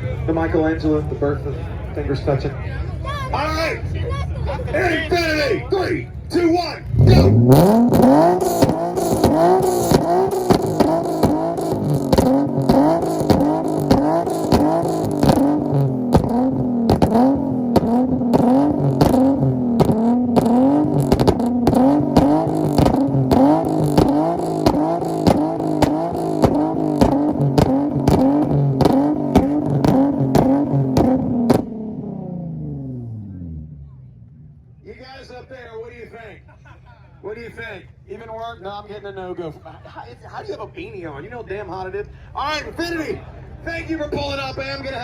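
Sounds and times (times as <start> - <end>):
sharp exhaust crackles: 6.4 - 34.7
car engine revving against limiter: 6.8 - 34.5.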